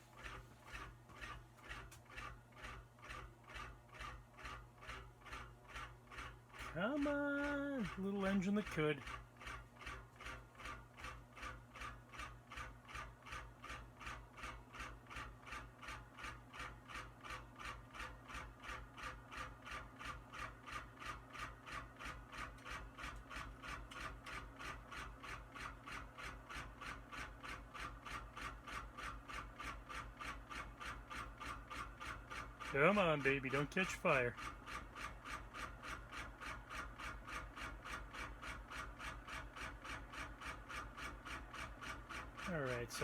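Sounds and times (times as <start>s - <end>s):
fan motor hum: 0.0s - 11.9s, 27.9s - 43.0s
ceiling fan rhythmic scraping: 0.0s - 43.0s.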